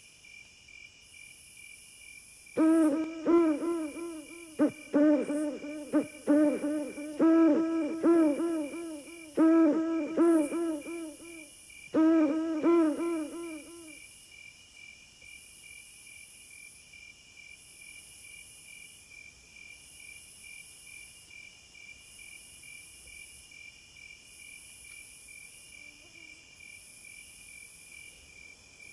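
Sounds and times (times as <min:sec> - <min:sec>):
crickets chirping: 0:00.0 - 0:28.9
high insect pulse: 0:02.5 - 0:14.1
owl hooting: 0:02.6 - 0:14.0.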